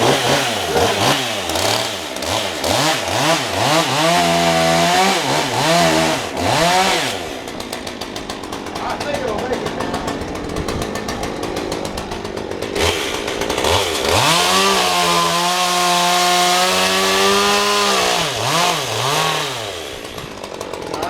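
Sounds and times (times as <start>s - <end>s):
two-stroke chainsaw revving: 0.0s - 21.0s.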